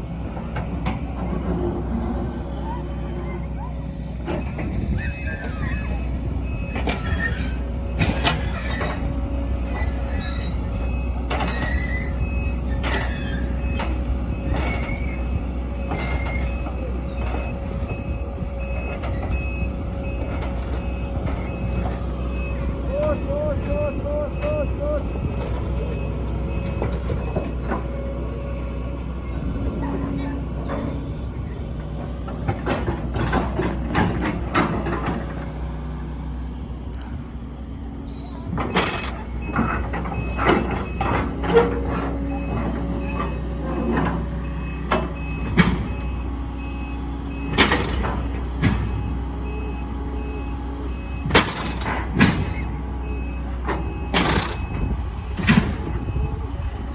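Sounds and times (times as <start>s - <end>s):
excavator diesel engine running: 0.0s - 56.9s
short high beeps: 22.4s - 25.4s.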